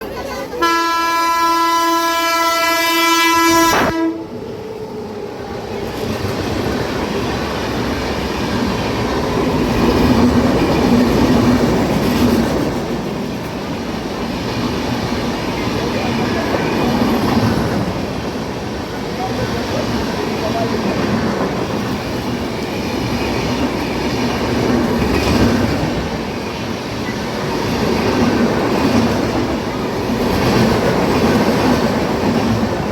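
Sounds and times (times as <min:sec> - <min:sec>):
train rumbling on rails: 0:00.0 - 0:32.9
train horn blast: 0:00.6 - 0:04.4.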